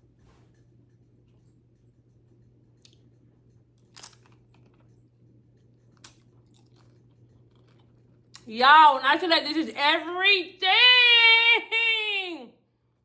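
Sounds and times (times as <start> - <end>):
faint steady hum: 0.0 - 13.0
chip crunching: 3.8 - 5.0, 5.8 - 8.5.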